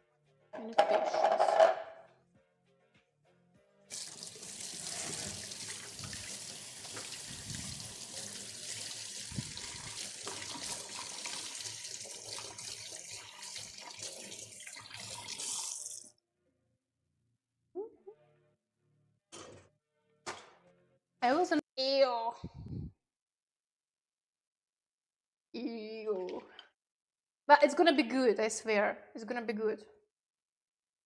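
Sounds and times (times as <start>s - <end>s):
water running from a tap: 3.9s - 16.1s.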